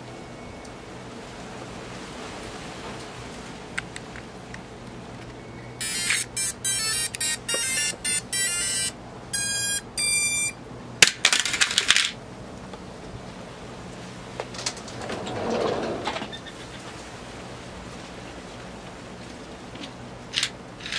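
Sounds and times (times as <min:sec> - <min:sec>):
robot weapon motor whining: 0:05.8 - 0:10.6.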